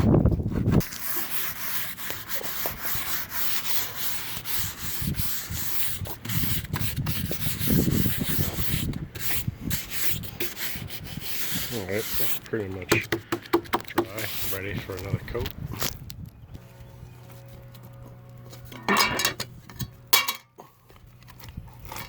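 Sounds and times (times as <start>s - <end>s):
hand sanding filler: 0.5s - 15.0s.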